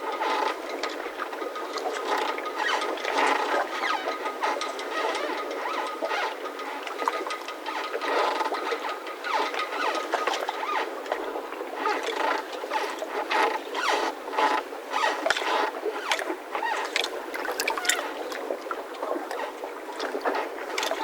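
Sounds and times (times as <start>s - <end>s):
mooring ropes squeaking and creaking: 12.2s - 21.0s.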